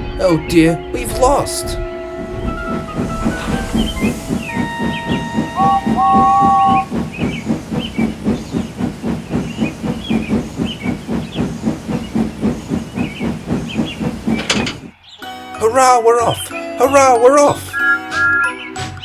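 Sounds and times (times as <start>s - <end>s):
steam engine whistle: 2.0s - 7.0s
steam engine chuffing: 3.6s - 14.9s.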